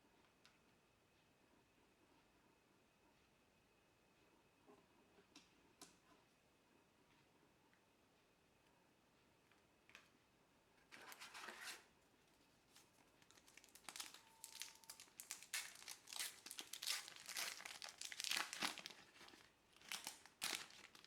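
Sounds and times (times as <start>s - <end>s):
card pack wrappers crinkling: 12.7s - 21.0s.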